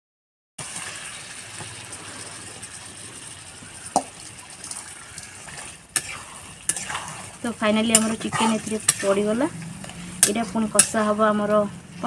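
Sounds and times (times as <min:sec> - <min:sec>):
curry sizzling in a pot: 0:00.6 - 0:12.0.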